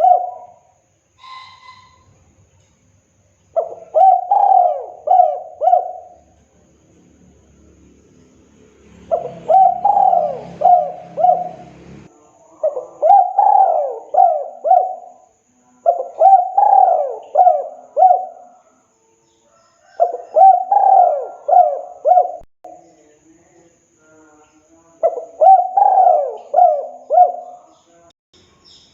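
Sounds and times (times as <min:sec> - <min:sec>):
dove cooing: 0:00.0 - 0:02.0, 0:03.5 - 0:06.8, 0:09.0 - 0:15.2, 0:15.8 - 0:18.7, 0:19.8 - 0:22.5, 0:25.0 - 0:27.8.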